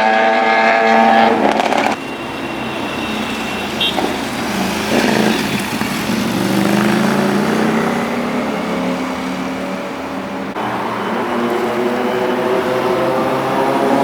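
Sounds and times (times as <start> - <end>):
motorbike engine accelerating: 0.0 - 2.0, 4.4 - 9.6
road traffic noise: 0.0 - 14.0.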